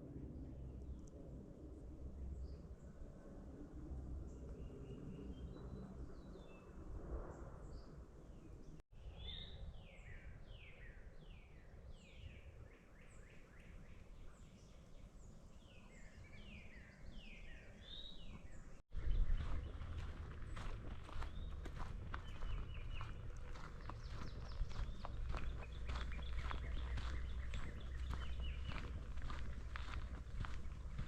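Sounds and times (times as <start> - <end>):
faint low outdoor rumble: 17.2 - 31.0.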